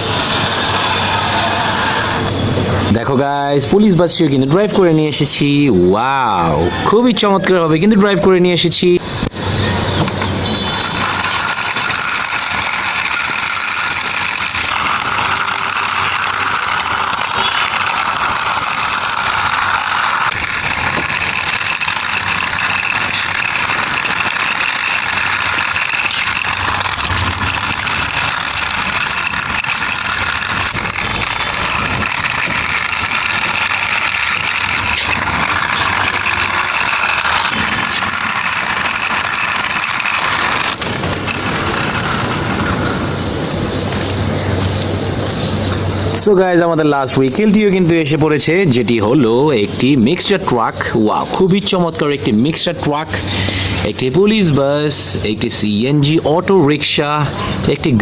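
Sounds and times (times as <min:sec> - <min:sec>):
vehicle engine running: 0:09.4 - 0:46.2.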